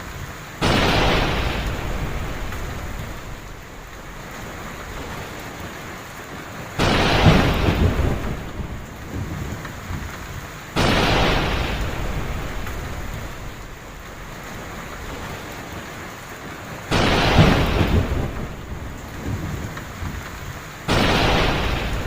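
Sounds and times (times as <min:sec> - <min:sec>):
heavy rain: 0:00.0 - 0:22.0
thunder crack and rumble: 0:00.6 - 0:22.0.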